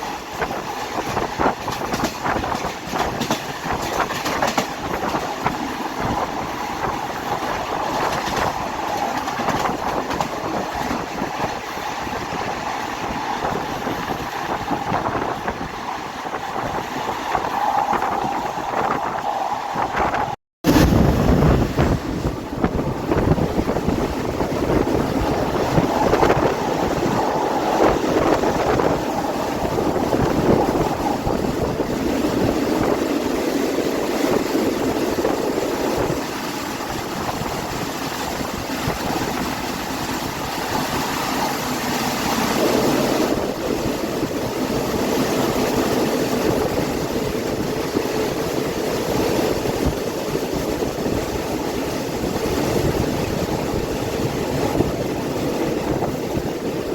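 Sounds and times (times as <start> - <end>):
train wheels rumbling on rails: 0.0 - 56.9
wind rushing past train: 0.0 - 56.9.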